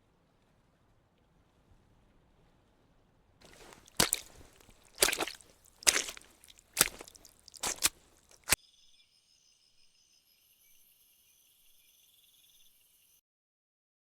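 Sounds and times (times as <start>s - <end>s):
sharp snapping strikes: 3.4s - 8.6s.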